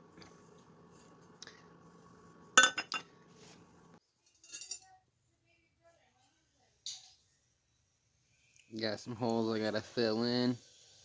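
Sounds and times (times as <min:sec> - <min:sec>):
faint steady hum: 0:00.0 - 0:04.0.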